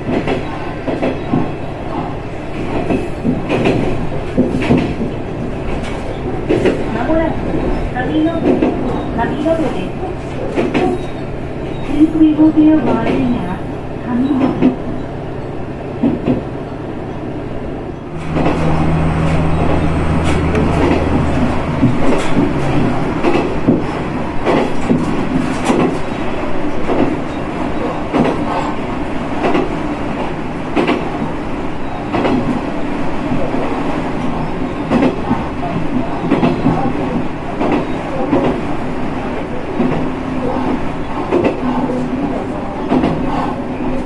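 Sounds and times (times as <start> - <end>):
train running noise: 0.0 - 44.0
low engine drone: 18.1 - 22.9.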